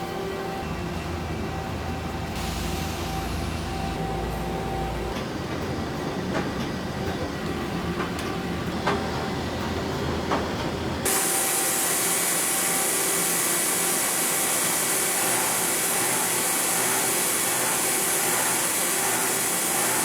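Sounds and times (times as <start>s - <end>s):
metal lathe running: 11.0s - 20.0s.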